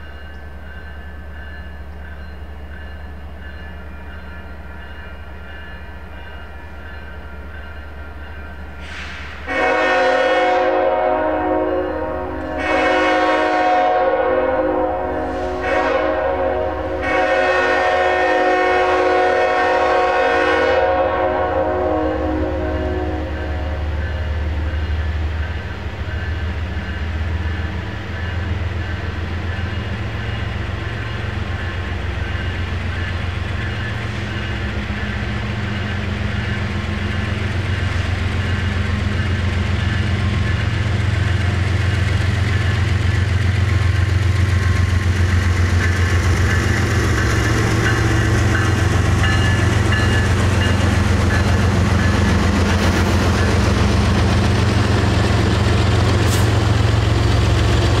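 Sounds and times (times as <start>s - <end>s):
diesel locomotive engine throb: 0.0s - 58.0s
wheels hissing on rail: 8.6s - 10.1s, 15.0s - 18.6s, 28.8s - 58.0s.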